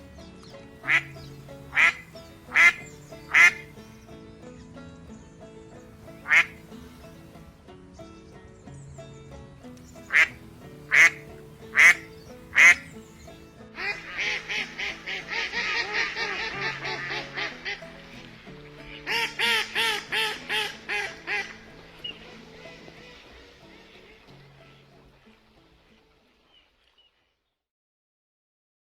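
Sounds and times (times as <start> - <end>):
ducks quacking: 0.0 - 4.3, 5.8 - 7.4, 9.9 - 26.9
soft background music: 0.0 - 27.0.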